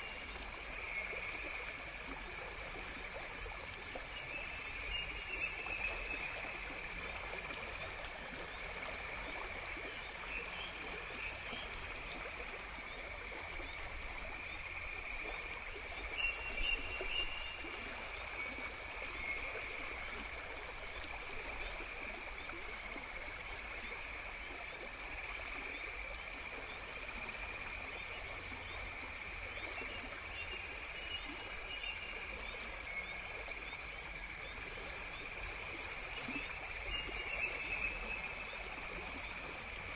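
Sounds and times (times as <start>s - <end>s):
crickets trilling: 0.0s - 7.0s, 28.4s - 39.9s.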